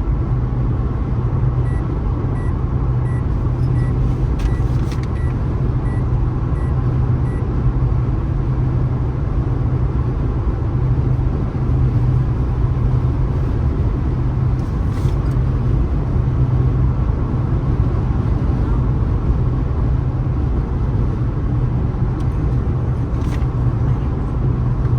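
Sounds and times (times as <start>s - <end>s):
car road and engine noise: 0.0s - 24.9s
faint short beeps: 3.1s - 6.0s.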